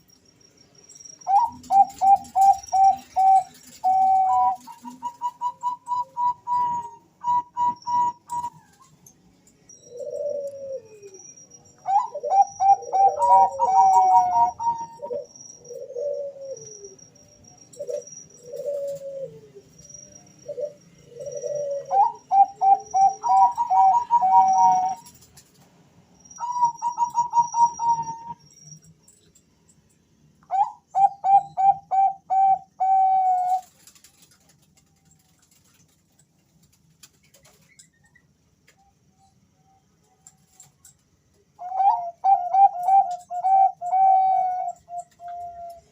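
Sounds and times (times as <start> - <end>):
doves cooing: 1.3 - 9.1, 9.7 - 17.0, 17.7 - 25.4, 26.4 - 28.4, 30.5 - 34.8, 41.6 - 45.9.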